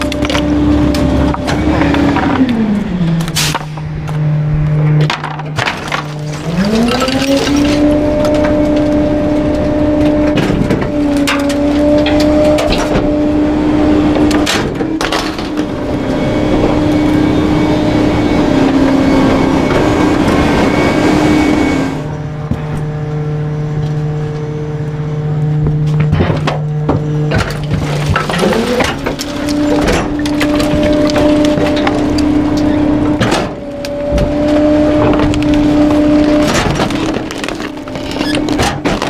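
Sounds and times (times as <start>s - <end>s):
garbage truck engine revving: 0.0s - 39.0s
hydraulic packer running: 0.0s - 39.0s
items being crushed: 4.9s - 13.1s, 25.9s - 39.0s.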